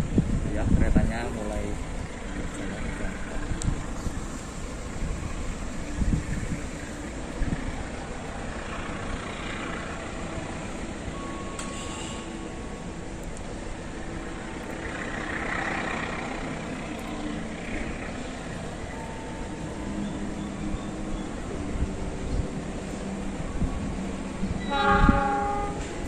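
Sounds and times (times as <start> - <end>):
distant train rumble: 0.0 - 26.0.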